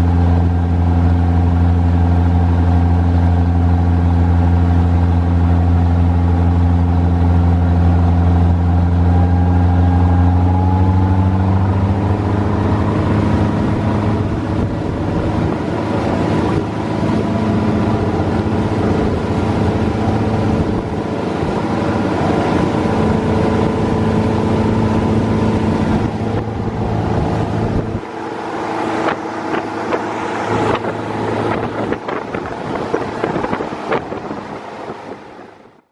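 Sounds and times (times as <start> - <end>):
marine diesel engine running: 0.0 - 35.9
water noise: 0.0 - 35.9
rushing wind: 8.6 - 35.9.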